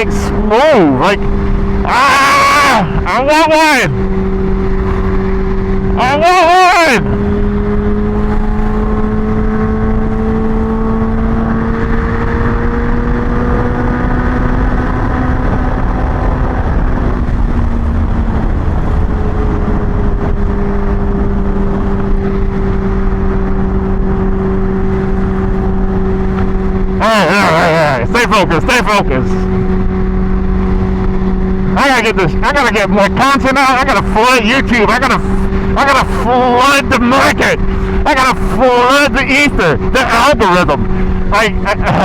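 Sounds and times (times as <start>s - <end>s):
motorcycle engine cruising: 0.0s - 42.0s
wind rumble on microphone: 3.9s - 6.0s, 7.0s - 27.3s, 29.0s - 32.4s.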